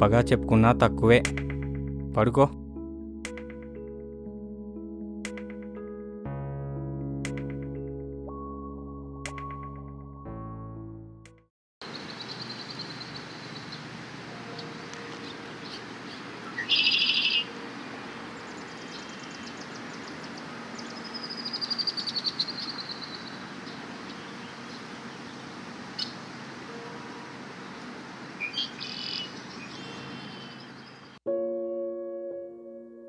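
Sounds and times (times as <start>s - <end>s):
birds chirping and trilling: 11.8s - 31.2s.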